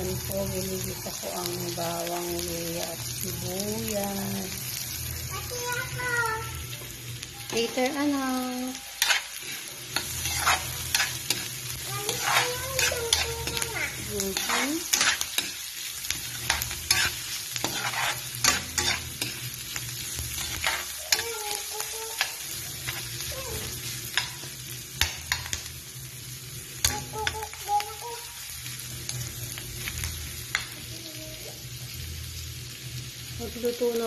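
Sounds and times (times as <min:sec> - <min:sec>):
aromatics sizzling in hot oil: 0:00.0 - 0:34.0
spatula scraping a wok: 0:07.5 - 0:25.6.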